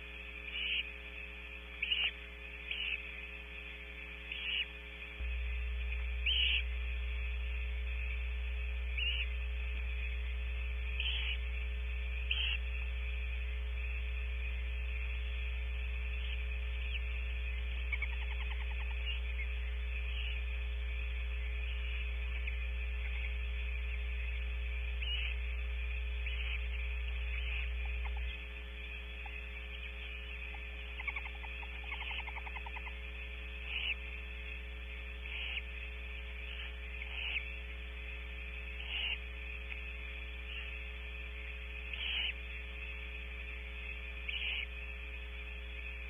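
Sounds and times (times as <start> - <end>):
electrical mains hum: 0.0 - 46.0
owl hisses: 33.6 - 34.0, 35.2 - 35.7, 36.5 - 37.5, 38.8 - 39.2, 41.9 - 42.4, 44.3 - 44.7.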